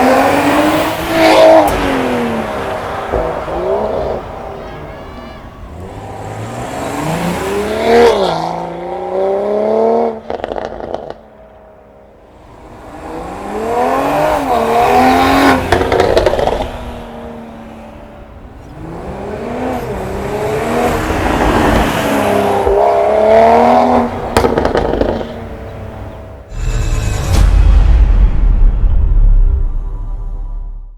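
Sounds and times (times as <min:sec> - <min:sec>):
car engine revving hard: 0:00.0 - 0:04.6, 0:05.7 - 0:11.2, 0:12.6 - 0:17.8, 0:18.7 - 0:25.6
exhaust crackles: 0:23.9 - 0:25.5.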